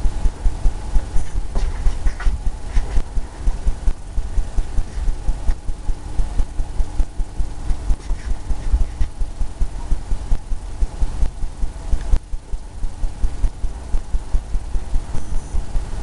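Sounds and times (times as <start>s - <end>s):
faint steady hum: 0.0s - 16.0s
paintbrush thumping on canvas: 1.2s - 3.2s.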